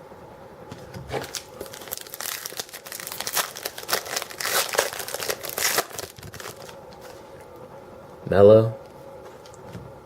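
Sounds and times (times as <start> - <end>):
foil wrapper crinkling and tearing: 1.2 - 6.8.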